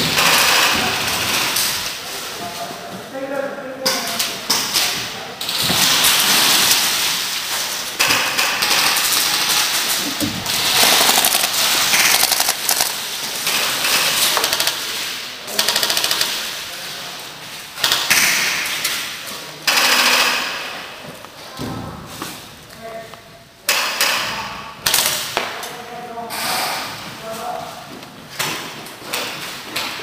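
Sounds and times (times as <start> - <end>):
airsoft guns firing bursts: 10.4 - 16.6.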